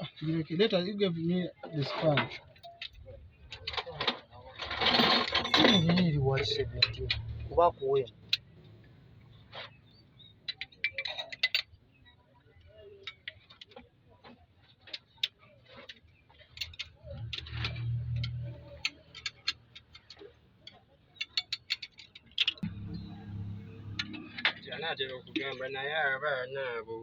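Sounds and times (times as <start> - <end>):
metallic clinks of spanners: 4.9 - 7.5
low rumble: 6.0 - 7.9, 22.6 - 25.4.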